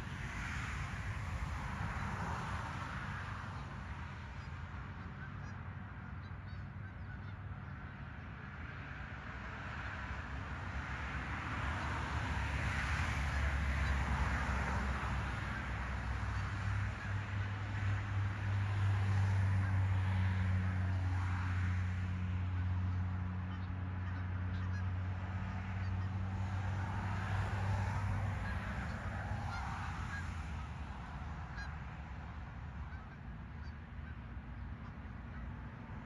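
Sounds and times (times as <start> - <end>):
geese honking: 5.0 - 8.0, 22.9 - 32.0, 32.8 - 35.6.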